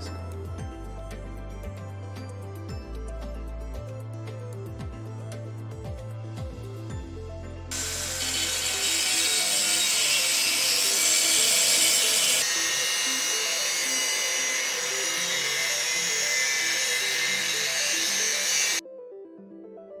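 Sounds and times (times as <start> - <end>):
angle grinder grinding iron: 7.7 - 18.8.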